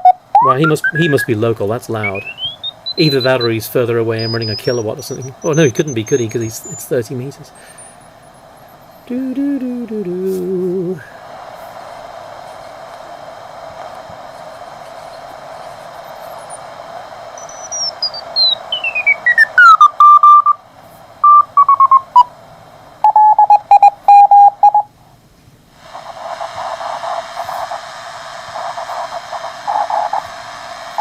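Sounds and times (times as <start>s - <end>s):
morse code tones: 0.0s - 8.0s, 17.4s - 20.6s, 21.2s - 22.3s, 23.0s - 24.9s
radio static hiss: 0.0s - 31.0s
falling whistling beat note: 0.4s - 1.4s, 2.0s - 7.0s.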